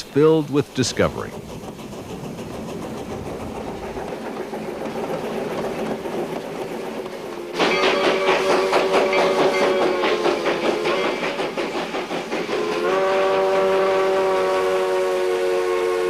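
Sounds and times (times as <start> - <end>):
rhythmic locomotive chuffing: 0.0 - 16.0
steam locomotive whistle: 7.4 - 11.4, 12.5 - 16.0.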